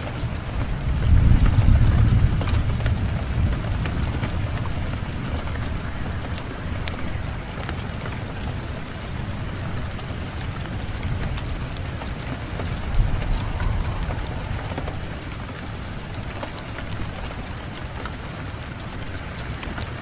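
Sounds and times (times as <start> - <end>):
fireplace fire crackling: 0.0 - 20.0
low rumble of wind: 0.0 - 20.0.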